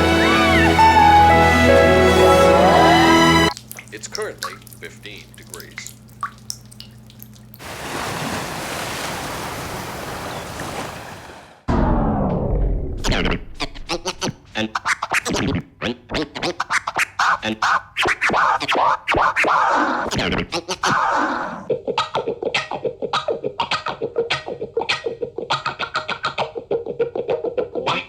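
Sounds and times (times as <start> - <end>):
electronic music with scratch hits: 13.0 - 21.6.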